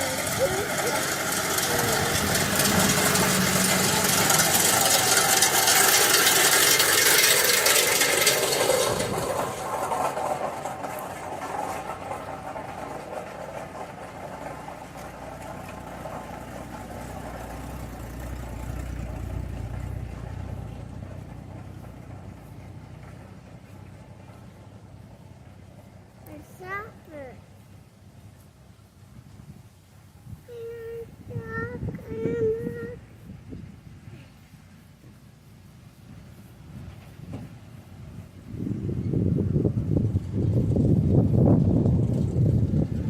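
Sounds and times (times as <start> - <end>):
tractor engine running: 0.0 - 43.0.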